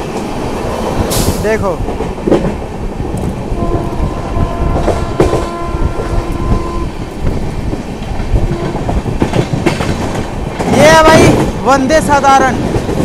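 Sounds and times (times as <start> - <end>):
train rumble and wheel clatter: 0.0 - 13.0
train horn: 3.6 - 7.0, 8.5 - 8.9.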